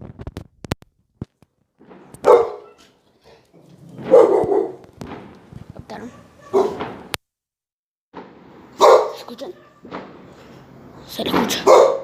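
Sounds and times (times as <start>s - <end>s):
dog barking: 2.2s - 3.4s, 4.0s - 4.8s, 5.9s - 7.0s, 8.8s - 10.0s, 11.5s - 12.0s.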